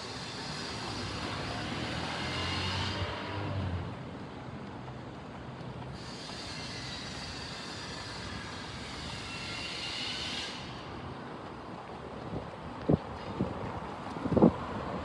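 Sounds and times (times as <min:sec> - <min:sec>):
faint high wheel squeal: 0:00.0 - 0:03.5, 0:05.9 - 0:11.2
train running on rails: 0:00.0 - 0:15.0.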